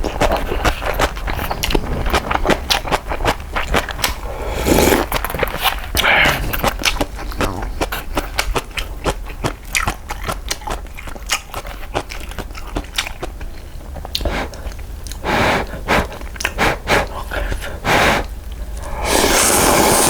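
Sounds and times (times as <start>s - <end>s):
person chewing noodles: 0.0s - 20.0s
loud noisy bursts: 19.0s - 20.0s.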